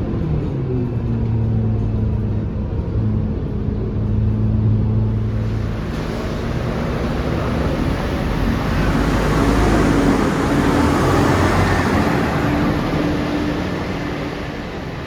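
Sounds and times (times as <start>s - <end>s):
road noise: 0.0s - 15.0s
bus diesel engine running: 5.1s - 15.0s.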